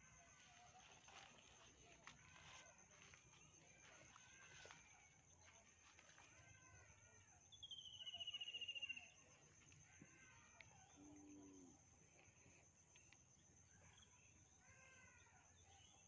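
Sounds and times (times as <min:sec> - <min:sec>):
bird trill: 0:07.5 - 0:09.2.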